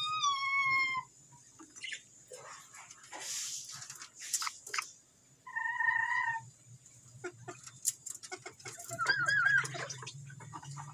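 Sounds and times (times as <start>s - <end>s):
parrot squawking: 0.0s - 1.1s, 8.8s - 10.9s
parrot warbling chirp: 8.9s - 10.2s.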